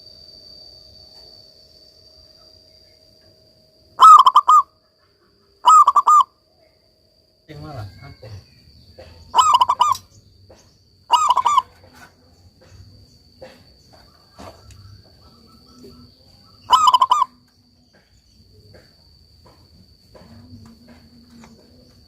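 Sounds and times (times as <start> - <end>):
dove cooing: 4.0 - 4.7, 5.6 - 6.3, 9.0 - 10.0, 11.1 - 12.1, 14.0 - 17.4.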